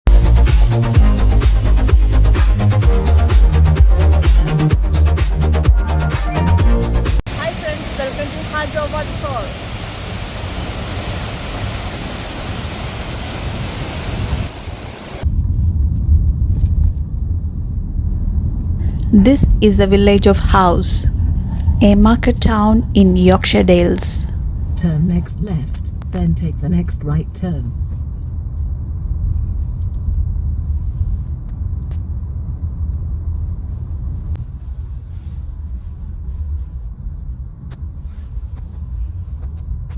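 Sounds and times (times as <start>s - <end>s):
waterfall rushing water: 7.3s - 15.2s
low rumble: 14.4s - 39.9s.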